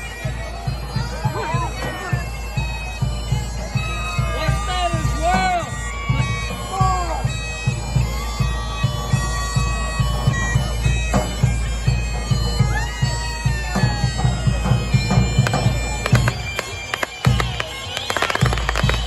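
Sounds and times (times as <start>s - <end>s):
bagpipe music: 0.0s - 19.0s
steady drum beat: 0.0s - 19.0s
firework bangs: 15.4s - 19.0s.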